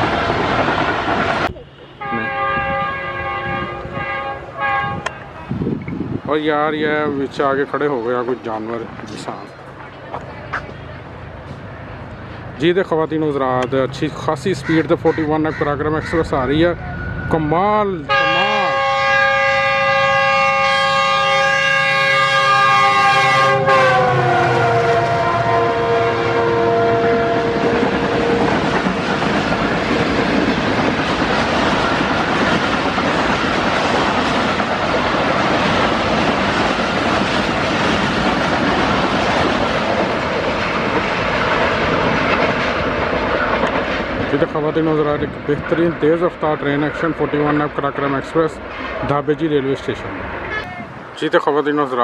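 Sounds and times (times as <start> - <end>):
locomotive horn: 1.9 - 5.5, 18.0 - 28.7.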